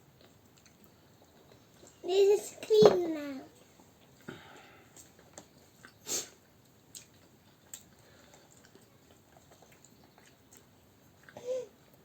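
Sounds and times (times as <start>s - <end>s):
soft chewing: 0.0s - 2.3s, 3.5s - 12.0s.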